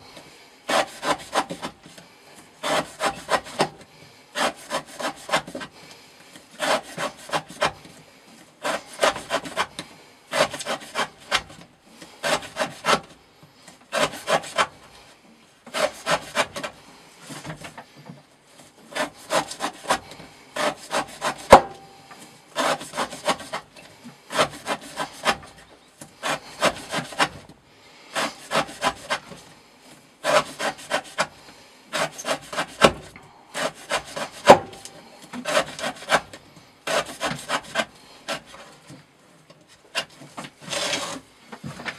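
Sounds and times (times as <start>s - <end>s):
knife slicing through rope: 13.9s - 14.8s, 15.7s - 16.7s, 22.6s - 23.7s, 28.2s - 29.4s, 30.2s - 31.3s.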